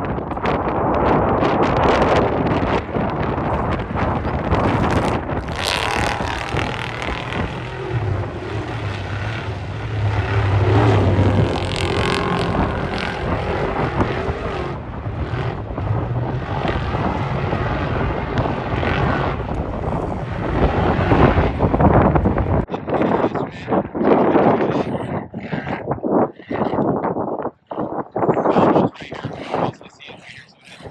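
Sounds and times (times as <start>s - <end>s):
wind buffeting microphone: 0.0s - 30.9s
vehicle engine running: 2.0s - 22.7s.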